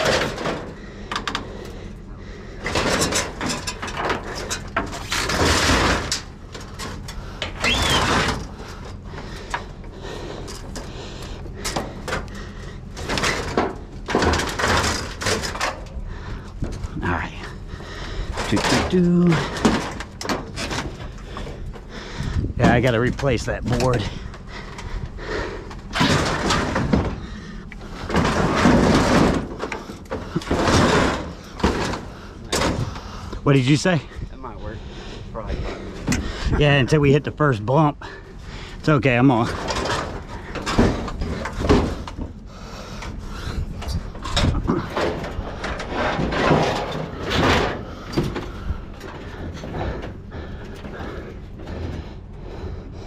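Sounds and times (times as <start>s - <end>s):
heavy objects knocking and scraping: 10.4s - 33.5s, 38.8s - 52.7s.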